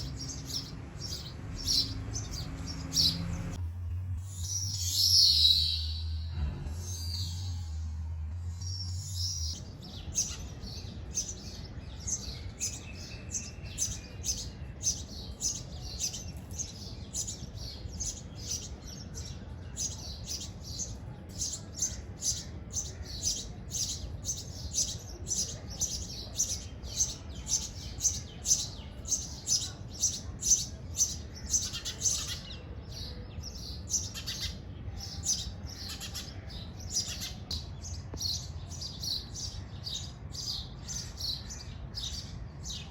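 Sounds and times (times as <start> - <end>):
sparrows chirping: 0.0 - 3.6, 4.2 - 7.9, 8.5 - 42.9
steady low rumble: 5.8 - 10.6.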